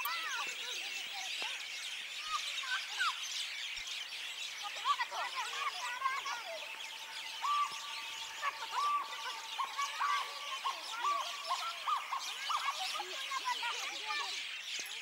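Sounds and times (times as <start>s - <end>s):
birds chirping chorus: 0.0s - 15.0s
repeating bird call: 4.6s - 14.4s.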